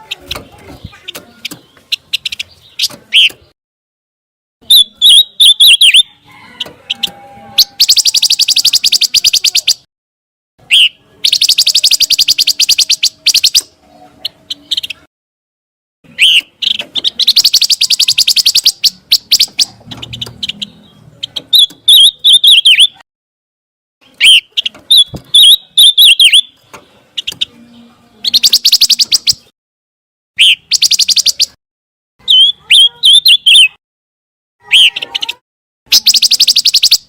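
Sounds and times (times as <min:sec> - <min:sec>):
songbird singing buzzy trills: 0:04.6 - 0:09.9, 0:10.6 - 0:15.1, 0:16.1 - 0:23.0, 0:24.0 - 0:29.5, 0:30.4 - 0:31.6, 0:34.7 - 0:37.0.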